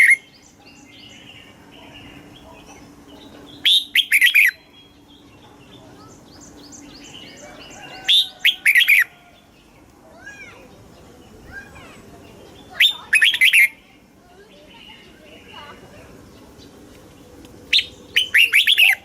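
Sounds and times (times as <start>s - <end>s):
soft bird chirps and whistles: 0.0s - 9.2s, 11.4s - 13.8s, 17.7s - 19.0s
bird singing whistled phrases: 3.6s - 5.0s, 12.6s - 13.8s, 17.7s - 19.0s.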